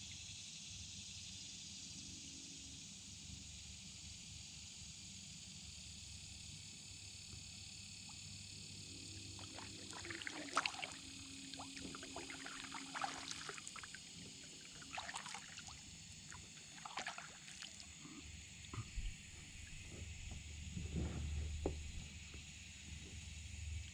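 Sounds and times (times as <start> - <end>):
water dripping off paddle: 9.2 - 17.9
paddle dipping into water: 9.2 - 18.0.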